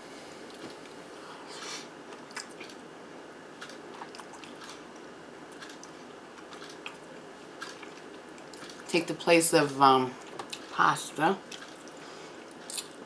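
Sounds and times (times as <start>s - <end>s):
close chewing and biting: 3.6s - 7.0s, 7.6s - 8.9s, 11.5s - 13.0s.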